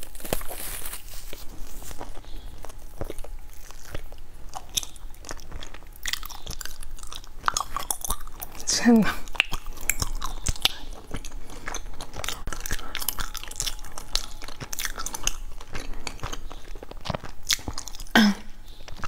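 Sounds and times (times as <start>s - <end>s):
chewing sticky rice cake: 0.0s - 19.0s
wet mouth clicks: 9.2s - 19.0s.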